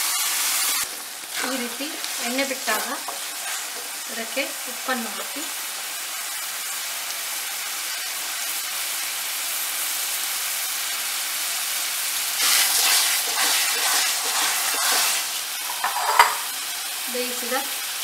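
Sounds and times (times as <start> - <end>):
paste sizzling in hot oil: 0.0 - 18.0
wooden spatula scraping a pan: 1.3 - 4.1, 12.4 - 16.4.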